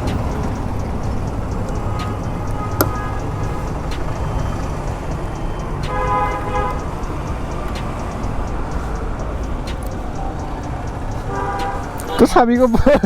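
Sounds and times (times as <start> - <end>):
motorcycle engine and road rumble: 0.0 - 13.0
horn toot: 5.9 - 6.8.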